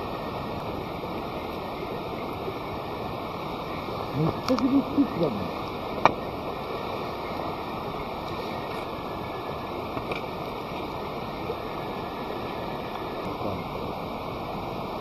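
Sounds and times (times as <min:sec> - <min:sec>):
rushing outdoor noise: 0:00.0 - 0:15.0
faint ticks: 0:04.2 - 0:04.8.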